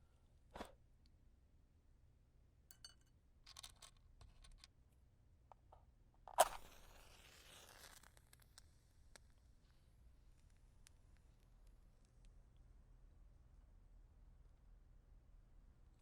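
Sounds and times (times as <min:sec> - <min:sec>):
match striking and flaring: 0:06.3 - 0:08.6
matches being handled: 0:06.3 - 0:08.6.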